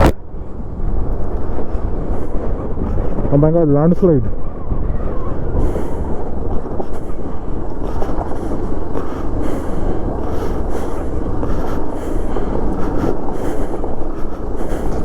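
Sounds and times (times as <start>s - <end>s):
motorcycle on rocky trail: 5.4s - 15.0s.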